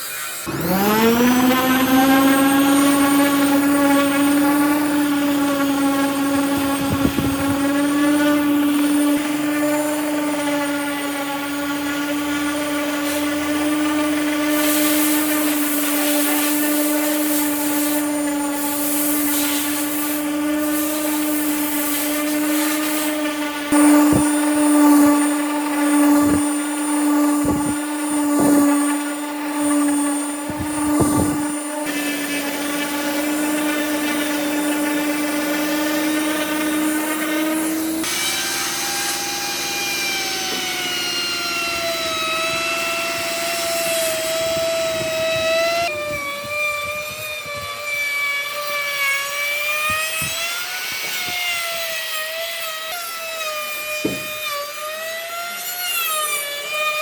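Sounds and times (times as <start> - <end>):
power tool motor whine: 0.0 - 57.0
knocks: 54.0 - 54.4.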